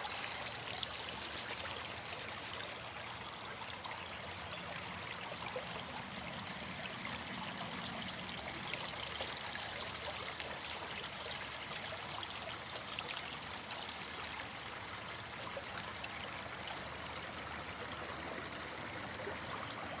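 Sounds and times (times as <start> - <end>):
water rushing in a stream: 0.0 - 20.0.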